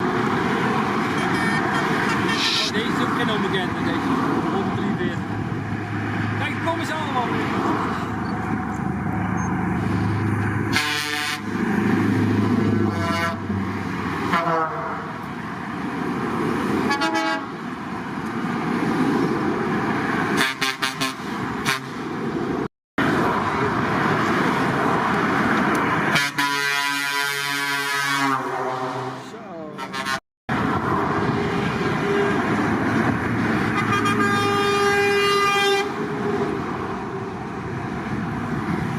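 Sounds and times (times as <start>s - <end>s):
truck engines running: 0.0s - 38.9s
truck horn blasts: 1.0s - 2.8s, 10.7s - 11.6s, 12.8s - 13.5s, 14.3s - 15.1s, 16.9s - 17.6s, 20.4s - 22.0s, 26.1s - 30.2s, 33.7s - 36.0s.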